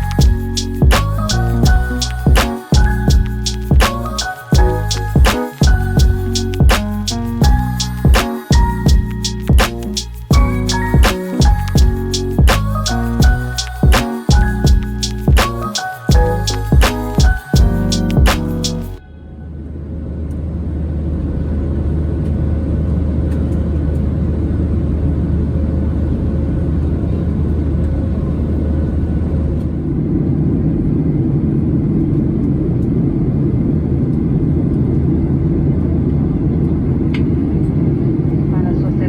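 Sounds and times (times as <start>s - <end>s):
aircraft cabin engine noise: 20.0s - 39.0s.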